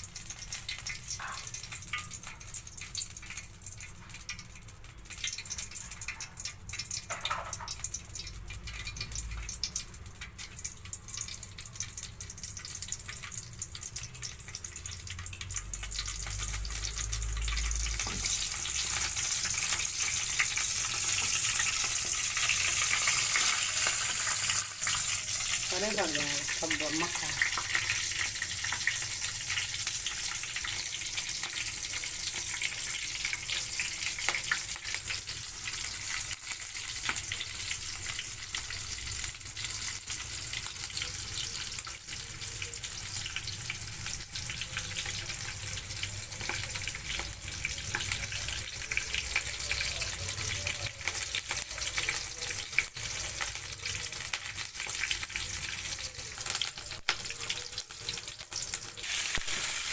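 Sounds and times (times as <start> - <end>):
vegetables sizzling in hot oil: 0.0 - 59.9.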